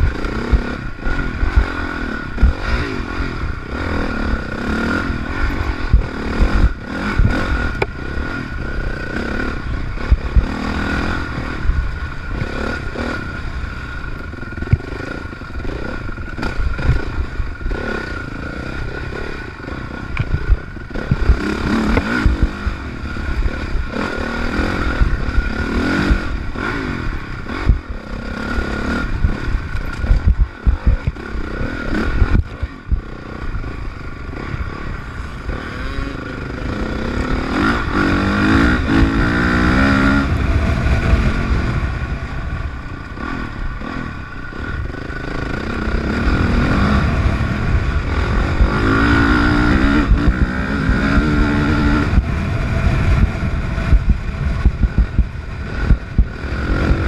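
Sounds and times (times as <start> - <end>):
dirt bike engine revving: 0.0 - 57.0
bike knocking and rattling: 19.8 - 28.0, 28.8 - 35.4, 52.0 - 57.0.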